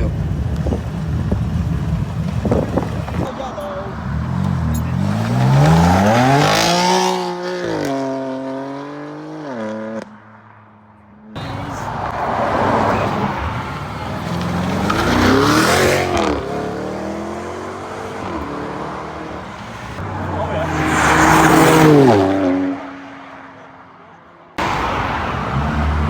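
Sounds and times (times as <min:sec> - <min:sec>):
car engines accelerating hard: 0:00.0 - 0:10.4, 0:11.3 - 0:26.0.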